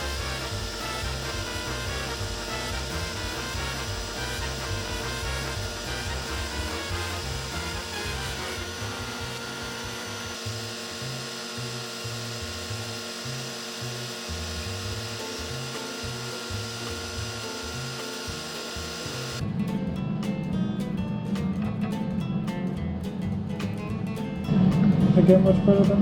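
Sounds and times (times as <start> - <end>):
background music with beat: 0.0 - 12.0, 14.4 - 26.0
power tool machining wood: 0.0 - 19.4.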